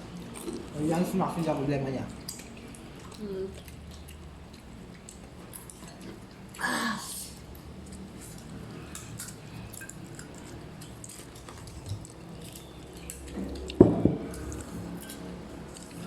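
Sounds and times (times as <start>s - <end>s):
chewing: 0.0s - 6.6s, 7.3s - 16.0s
sharp knocks: 13.8s - 14.3s.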